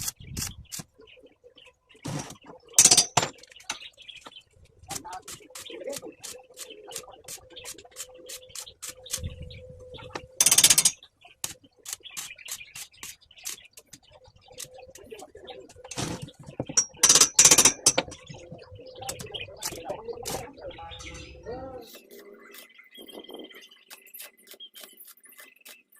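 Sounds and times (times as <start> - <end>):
birds cooing: 1.0 - 12.6, 13.4 - 23.9
cage rattling: 2.8 - 3.8, 16.0 - 18.4.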